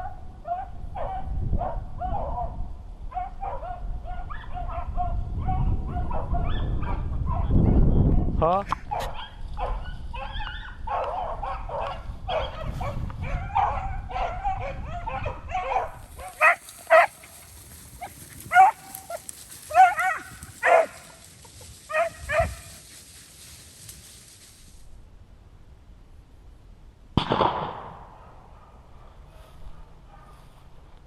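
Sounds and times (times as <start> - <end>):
hounds baying: 8.9 - 23.0.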